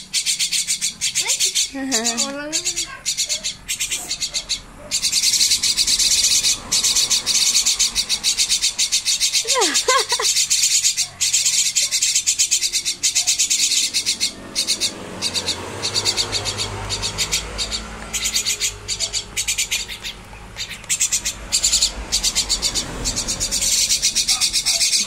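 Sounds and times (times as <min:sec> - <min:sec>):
fledgling birds begging calls: 0:00.0 - 0:25.0.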